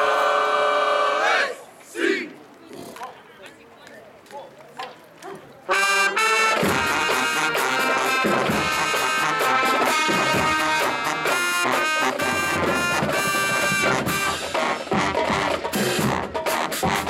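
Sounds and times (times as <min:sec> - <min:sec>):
brass horns holding chords: 0:05.7 - 0:17.0.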